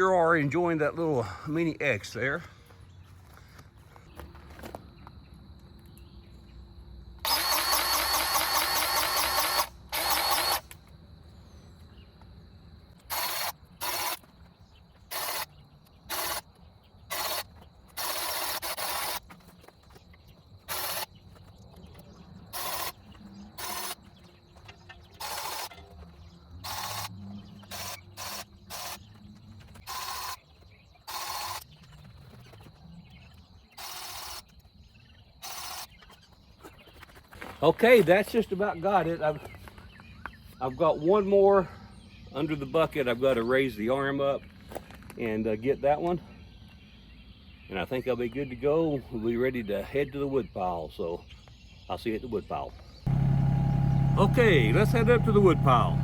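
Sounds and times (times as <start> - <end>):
grease gun trigger bursts: 7.3 - 10.7.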